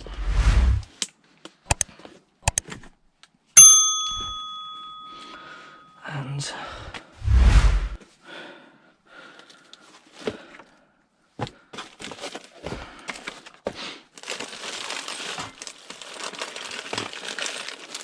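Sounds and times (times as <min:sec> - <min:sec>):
packaging crinkling: 0:14.2 - 0:18.0.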